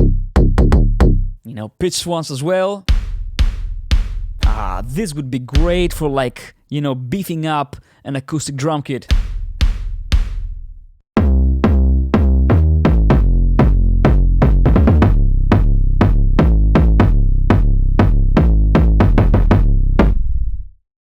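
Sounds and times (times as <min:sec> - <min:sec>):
synthesized pitched kick drums: 0:00.0 - 0:01.4, 0:02.9 - 0:06.2, 0:09.1 - 0:20.4.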